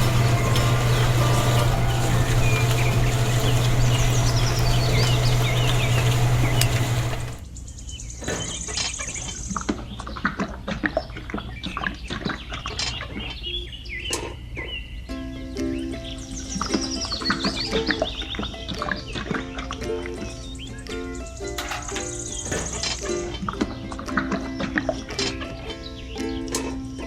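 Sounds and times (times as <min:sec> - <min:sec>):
small motor humming: 0:00.0 - 0:07.4
birds chirping: 0:00.0 - 0:15.1, 0:15.8 - 0:26.9.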